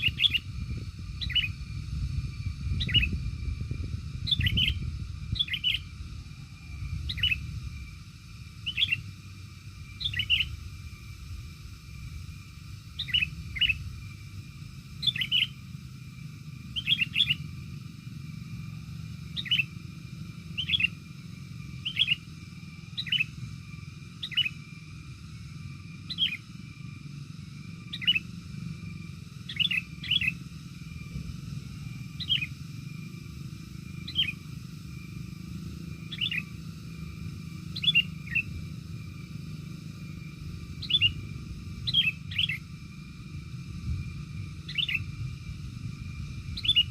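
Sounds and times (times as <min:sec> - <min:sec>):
bird chirping: 0:00.0 - 0:11.2, 0:12.8 - 0:17.6, 0:19.2 - 0:24.6, 0:26.0 - 0:26.5, 0:27.9 - 0:28.3, 0:28.9 - 0:31.2, 0:31.9 - 0:33.2, 0:33.8 - 0:35.1, 0:35.9 - 0:42.8, 0:44.3 - 0:45.6, 0:46.5 - 0:46.9
low background rumble: 0:00.0 - 0:46.9.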